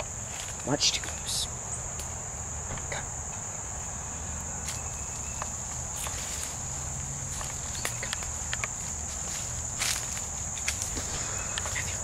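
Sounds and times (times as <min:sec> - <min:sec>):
insects chirring: 0:00.0 - 0:12.0
light footsteps: 0:05.4 - 0:12.0.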